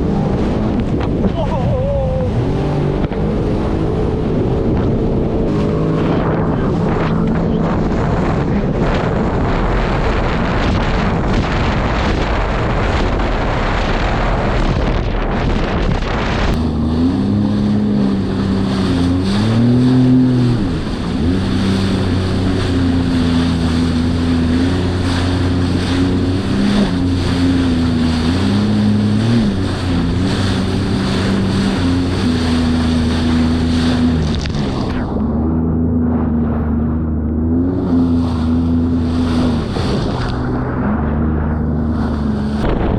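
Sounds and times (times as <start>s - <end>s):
jet ski engine: 0.0s - 42.9s
wind and spray on microphone: 37.8s - 40.5s.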